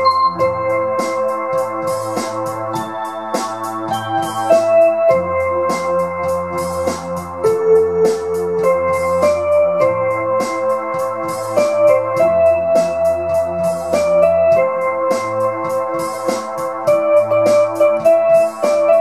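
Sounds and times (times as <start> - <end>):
bass line: 0.0 - 2.8
drum machine beat: 0.0 - 19.0
synthesizer melody and chords: 0.0 - 19.0.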